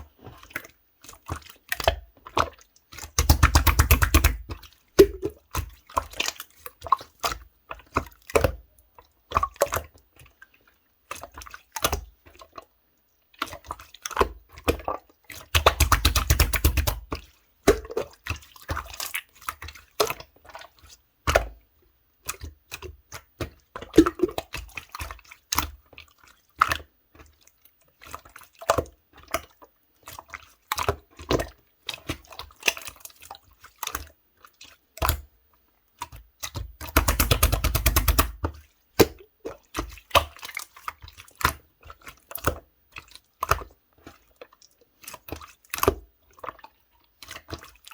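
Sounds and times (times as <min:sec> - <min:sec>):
slime squished by hand: 0:36.8 - 0:38.4.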